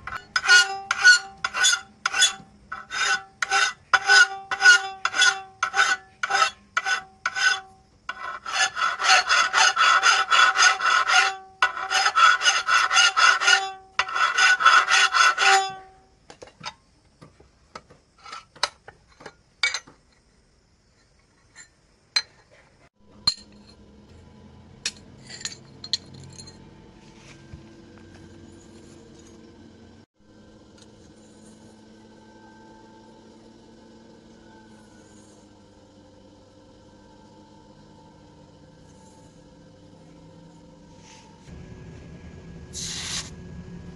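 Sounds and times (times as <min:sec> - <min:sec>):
hand file scraping steel blade: 0:00.0 - 0:16.0, 0:28.4 - 0:29.5
faint steady hum: 0:00.0 - 0:43.9.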